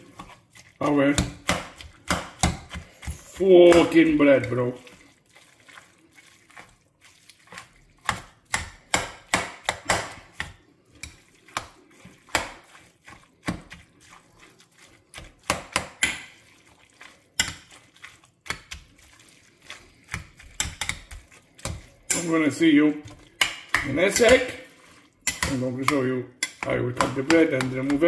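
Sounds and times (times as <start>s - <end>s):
metal spoon scraping and clinking pot: 7.5s - 11.6s, 17.0s - 28.0s.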